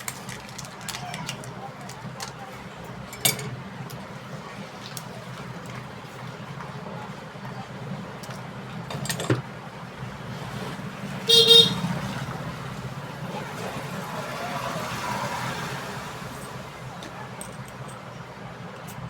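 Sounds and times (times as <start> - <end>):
faint traffic noise: 0.0 - 19.0
horn toot: 11.2 - 12.0.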